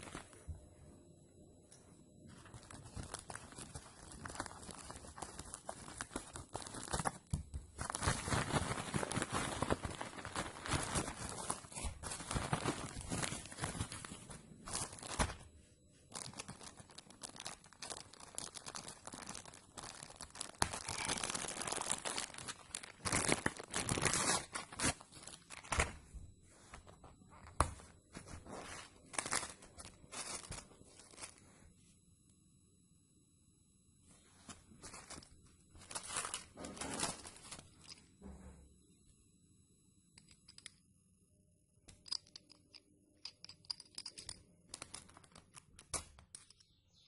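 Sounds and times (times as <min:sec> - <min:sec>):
packaging crinkling and tearing: 0:02.4 - 0:15.5, 0:16.1 - 0:26.0, 0:28.4 - 0:31.4, 0:34.8 - 0:38.0.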